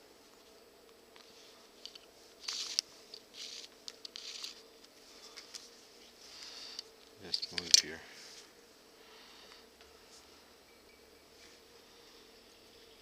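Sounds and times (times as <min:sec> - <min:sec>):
clicks and rustles of handling: 0:00.3 - 0:08.5.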